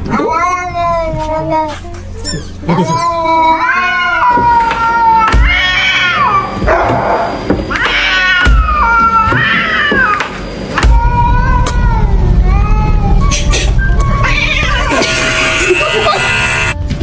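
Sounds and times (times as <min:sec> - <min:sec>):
cat meowing: 0:07.7 - 0:10.2, 0:11.0 - 0:15.6.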